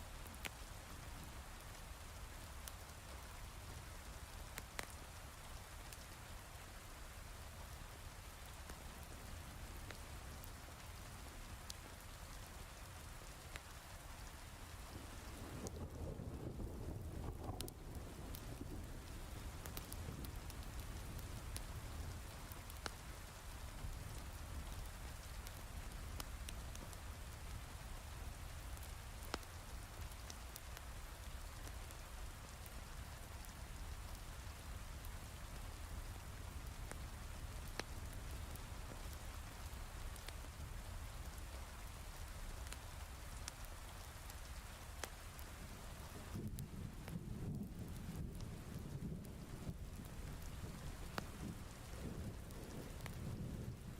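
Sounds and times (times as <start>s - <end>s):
wood fire crackling: 0.0s - 53.9s
heavy rain falling: 0.1s - 53.9s
thunder rumbling: 46.4s - 53.9s.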